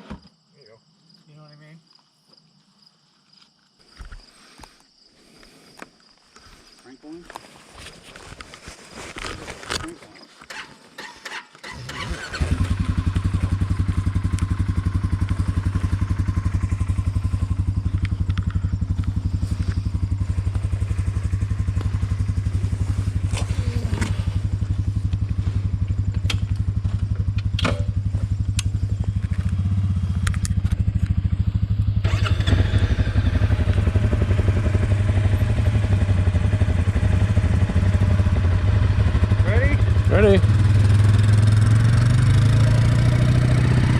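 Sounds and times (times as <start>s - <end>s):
single-cylinder engine idling: 11.6s - 41.5s.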